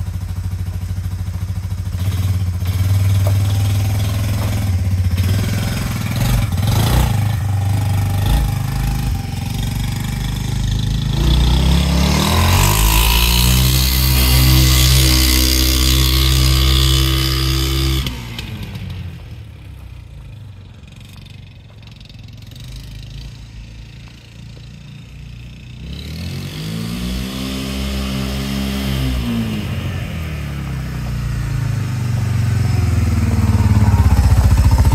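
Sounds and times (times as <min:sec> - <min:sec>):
atv engine revving: 0:00.0 - 0:34.9.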